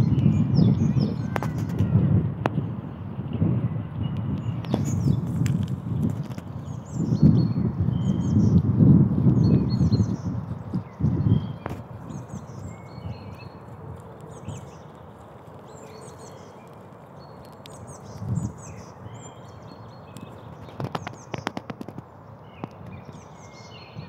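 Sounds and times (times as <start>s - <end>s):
small birds chirping: 0.0s - 1.9s, 2.5s - 24.0s.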